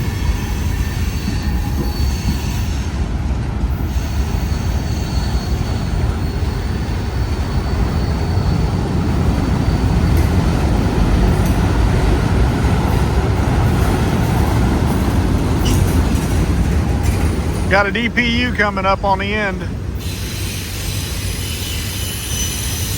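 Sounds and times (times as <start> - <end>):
high wheel squeal: 0.0 - 3.1, 3.7 - 9.9, 15.6 - 16.3, 20.0 - 22.9
train wheels rumbling on rails: 0.0 - 22.9.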